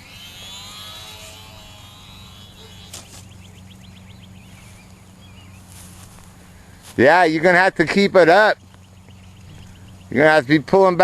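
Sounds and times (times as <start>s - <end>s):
model airplane motor whining: 0.0s - 5.0s
low hum: 0.0s - 6.9s.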